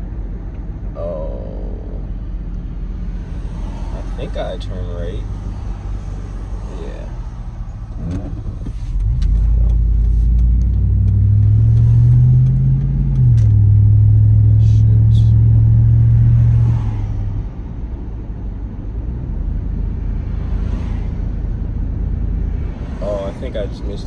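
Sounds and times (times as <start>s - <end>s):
car engine accelerating: 1.0s - 24.0s.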